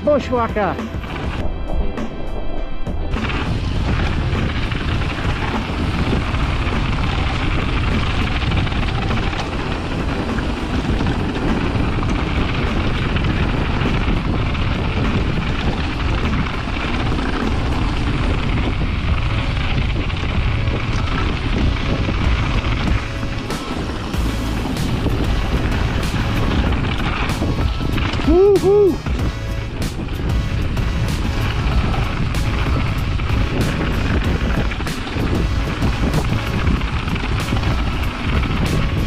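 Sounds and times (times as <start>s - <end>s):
wind rush: 0.0s - 39.0s
bike tyres rolling on trail: 2.9s - 39.0s.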